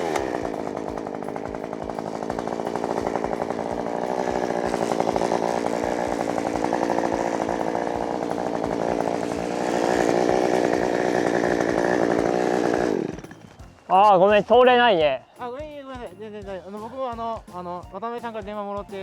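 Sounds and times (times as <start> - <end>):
chainsaw sawing wood: 0.0 - 15.0.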